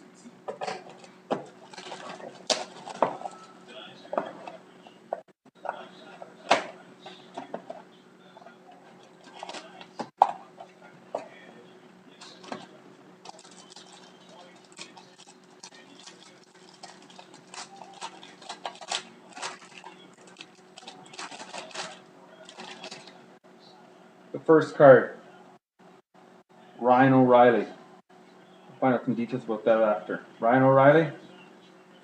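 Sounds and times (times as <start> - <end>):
faint steady hum: 0.0 - 32.0
packaging crinkling and clicking: 13.2 - 23.1.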